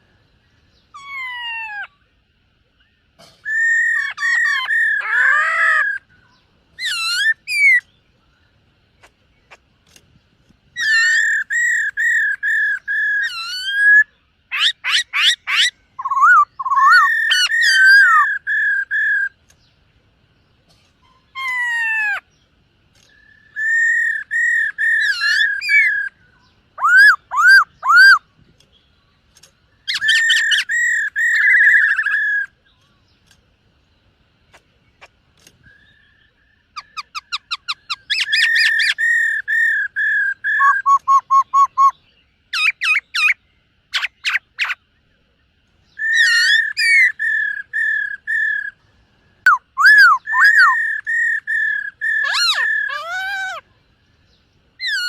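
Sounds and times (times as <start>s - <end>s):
bird singing whistled phrases: 3.5s - 8.0s, 10.8s - 19.4s, 23.0s - 28.3s, 29.8s - 32.9s, 35.6s - 44.8s, 45.9s - 48.8s, 49.5s - 53.6s.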